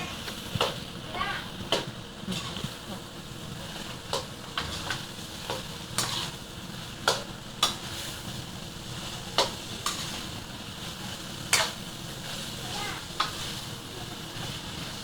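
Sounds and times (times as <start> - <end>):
masala sizzling in frying pan: 0.0 - 15.0
spoon scraping pan: 3.7 - 6.4, 9.3 - 10.3.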